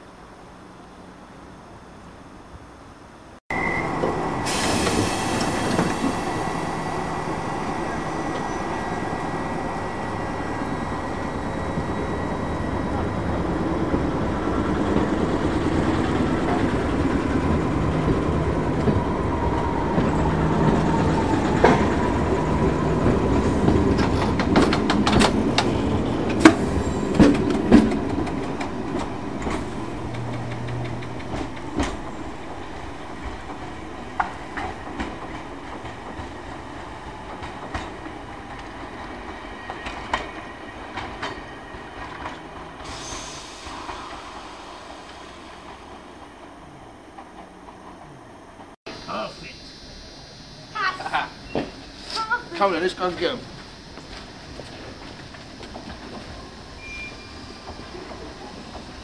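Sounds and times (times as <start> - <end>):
electric train pulling away: 3.5 - 59.0
train wheels clacking over rail joints: 23.0 - 32.1.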